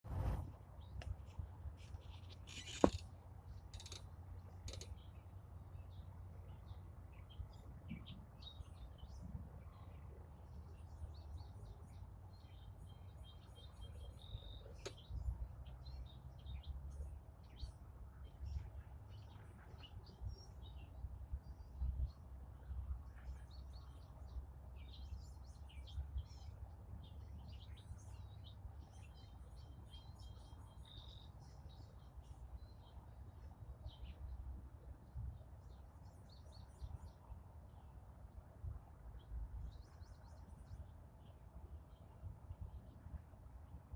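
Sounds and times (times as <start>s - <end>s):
faint low rumble: 0.1s - 2.3s.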